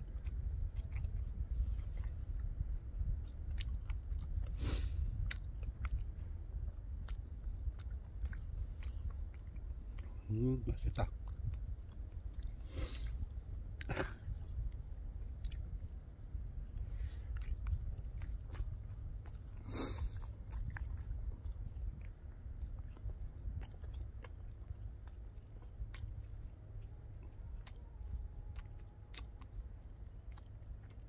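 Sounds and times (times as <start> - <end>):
man chewing food: 0.0 - 31.0
steady low rumble: 0.0 - 31.0.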